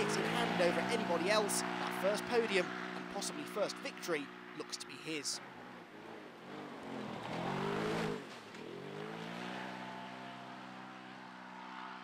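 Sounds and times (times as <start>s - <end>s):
car engine revving hard: 6.4s - 12.0s.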